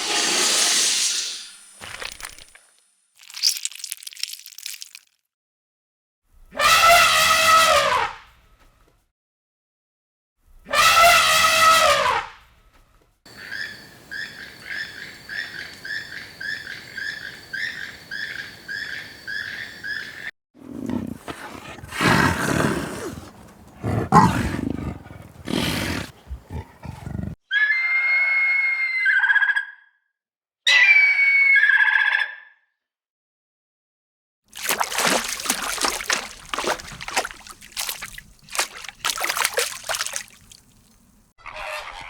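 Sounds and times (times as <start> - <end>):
rough animal roars: 20.6 - 27.4
animal falling call: 20.8 - 27.4.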